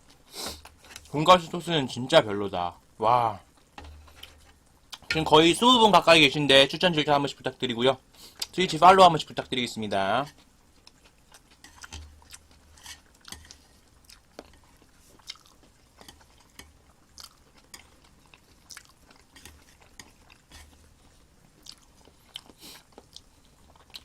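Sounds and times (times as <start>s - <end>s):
close-up chewing: 10.3s - 24.0s.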